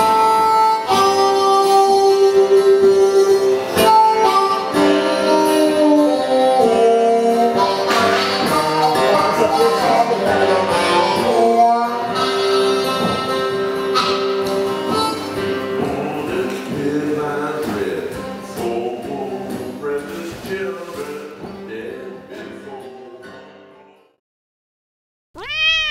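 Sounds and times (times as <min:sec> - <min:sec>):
harmonica bent notes: 0:00.0 - 0:16.3
plucked acoustic guitar: 0:00.0 - 0:24.2.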